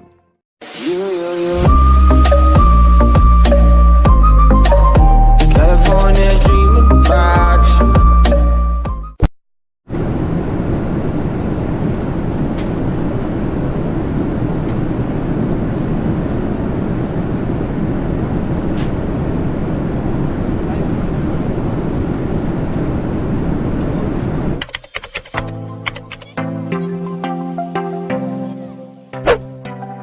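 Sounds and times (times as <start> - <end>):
aircraft engine drone: 9.9 - 26.4.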